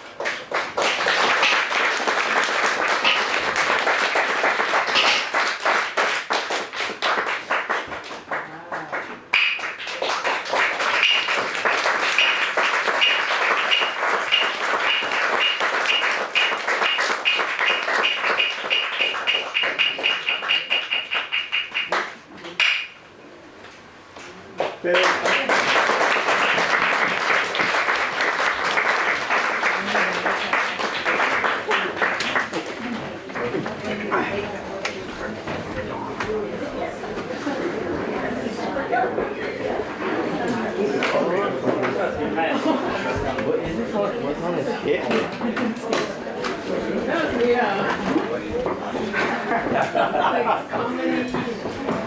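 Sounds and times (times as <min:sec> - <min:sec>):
audience applauding: 0:00.0 - 0:22.2, 0:24.7 - 0:34.5
wooden clappers struck: 0:09.3 - 0:09.7, 0:11.0 - 0:11.6, 0:12.2 - 0:23.0.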